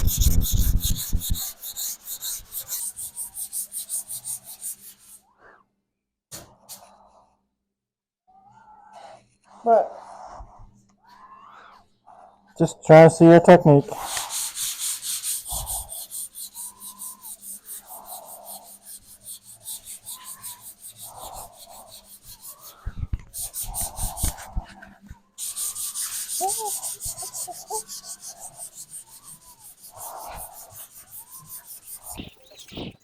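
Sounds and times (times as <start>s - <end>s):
sandpaper rubbing on metal panel: 0.0s - 5.2s, 13.9s - 33.0s.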